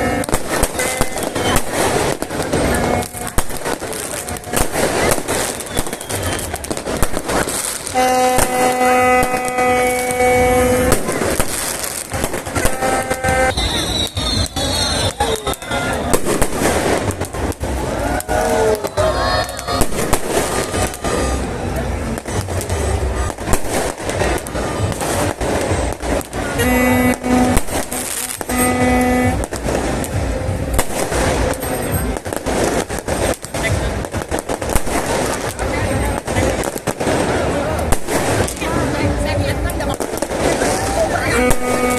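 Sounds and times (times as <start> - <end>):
horn steady note: 0.0 - 3.4, 7.8 - 16.2, 26.5 - 32.2, 41.2 - 41.9
crowd din: 0.0 - 41.9
fireworks crackling and bursting: 0.0 - 41.9
horn held note: 12.5 - 13.9, 26.6 - 29.5.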